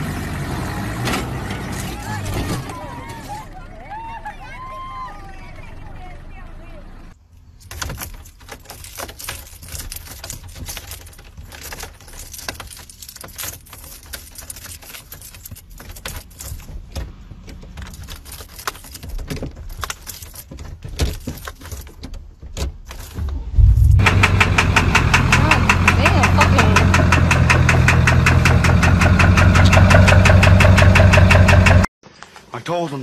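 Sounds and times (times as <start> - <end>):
key ring jangling: 7.6 - 17.0, 17.6 - 23.2
low rumble: 23.2 - 25.4.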